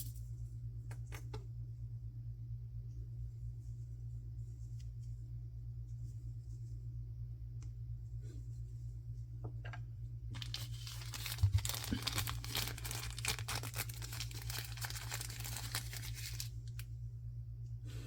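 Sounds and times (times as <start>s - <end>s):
packaging tearing and crinkling: 10.4s - 16.9s.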